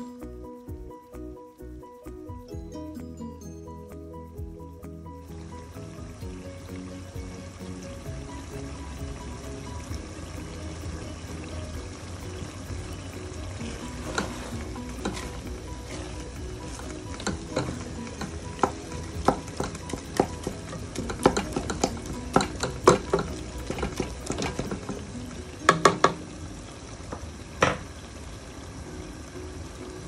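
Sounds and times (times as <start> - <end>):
meat sizzling: 4.4 - 30.0
wooden spoon tapping metal pot: 13.7 - 26.2.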